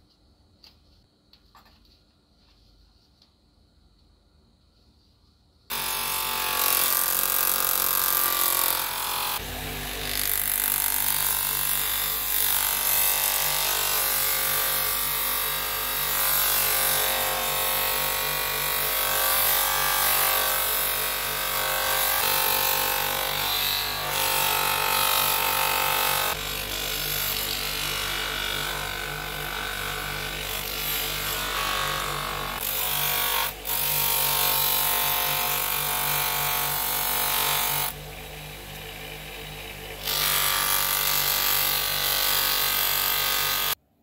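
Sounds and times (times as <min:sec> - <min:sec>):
electric power tool running: 0:05.7 - 0:15.6, 0:19.0 - 0:43.8.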